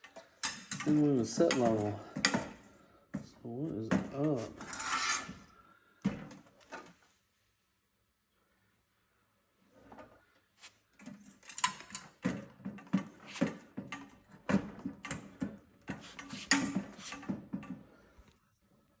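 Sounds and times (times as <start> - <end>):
parts clicking and rattling: 0.0 - 2.6, 11.0 - 17.9.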